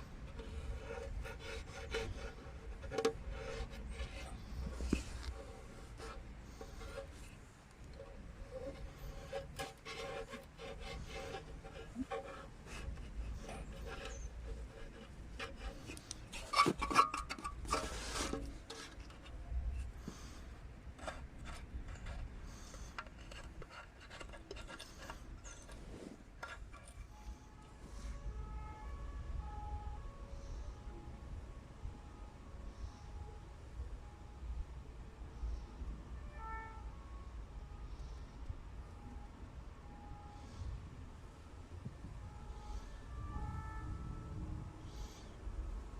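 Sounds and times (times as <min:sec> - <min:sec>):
hand tools scraping: 0:00.0 - 0:27.6.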